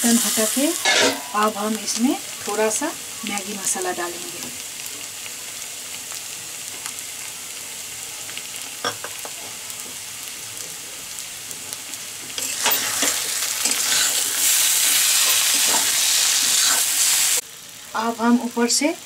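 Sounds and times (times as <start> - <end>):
food frying in oil: 0.0 - 19.0
spatula stirring and scraping: 12.3 - 17.4.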